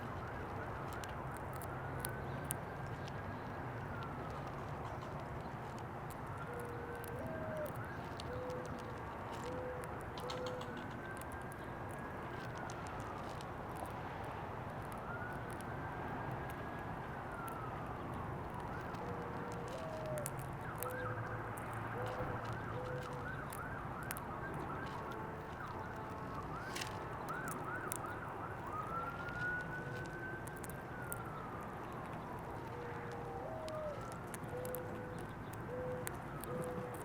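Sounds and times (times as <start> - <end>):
emergency siren wailing and yelping: 14.9 - 37.0.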